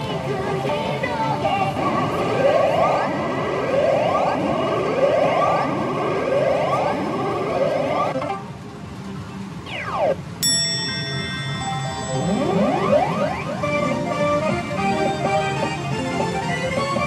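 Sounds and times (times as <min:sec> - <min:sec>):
electronic rising sweep: 0:01.8 - 0:08.4, 0:09.6 - 0:10.2, 0:11.4 - 0:15.5.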